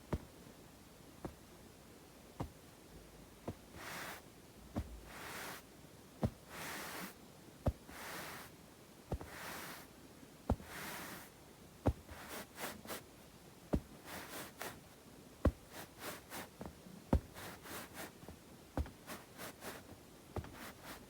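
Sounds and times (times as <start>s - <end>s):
hands rubbing and rustling: 3.4s - 8.5s, 9.1s - 9.9s, 10.5s - 13.1s, 13.7s - 21.0s.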